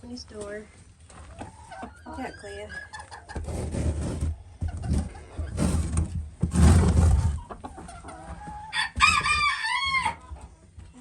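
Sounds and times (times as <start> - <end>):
chickens clucking: 0.4 - 3.6, 4.2 - 11.0
rustling and knocking: 3.3 - 7.6.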